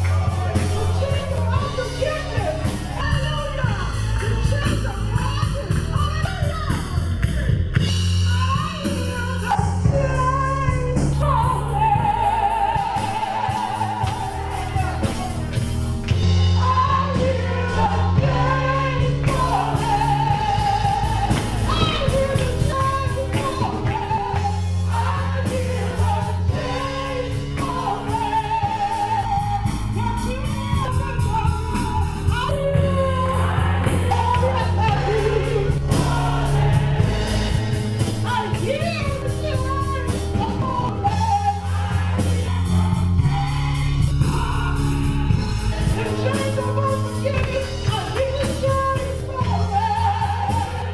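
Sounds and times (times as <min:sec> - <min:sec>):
gospel singing with band: 0:00.0 - 0:50.9.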